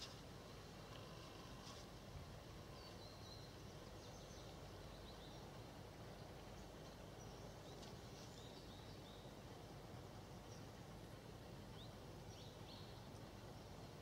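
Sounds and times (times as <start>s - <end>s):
faint low background hiss: 0.0s - 14.0s
small birds chirping: 2.6s - 9.5s, 11.6s - 14.0s.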